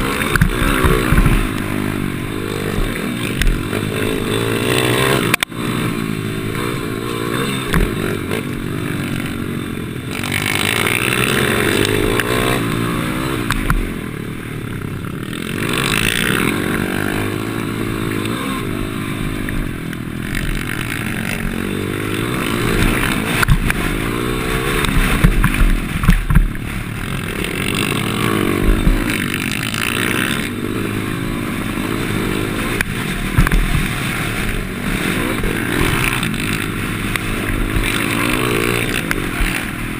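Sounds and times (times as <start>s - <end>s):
motorbike engine revving: 0.0s - 39.9s
sharp knocks and thumps: 0.2s - 1.6s, 7.6s - 8.0s, 22.7s - 23.9s, 24.8s - 26.8s, 28.6s - 29.9s, 32.8s - 34.6s.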